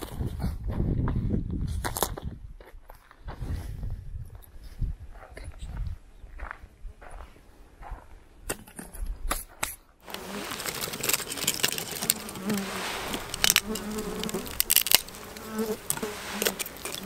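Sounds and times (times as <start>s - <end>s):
flying insect buzzing: 10.0s - 17.0s
steady hiss: 12.3s - 17.0s.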